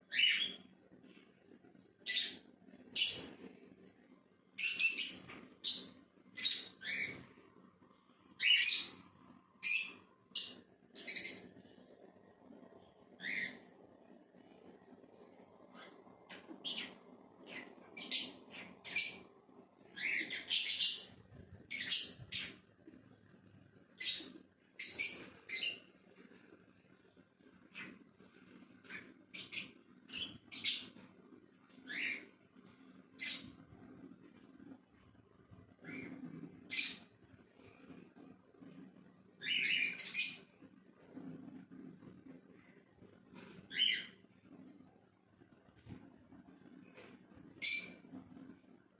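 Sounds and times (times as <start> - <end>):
faint low hum: 0.0 - 48.9
parrot chirping and squeaking: 0.1 - 0.7, 2.0 - 3.4, 4.6 - 7.3, 8.4 - 11.7, 13.1 - 13.7, 15.7 - 19.3, 19.9 - 22.6, 24.0 - 25.9, 28.8 - 31.1, 31.7 - 34.0, 35.8 - 37.2, 39.4 - 40.5, 43.7 - 44.2, 47.6 - 48.2.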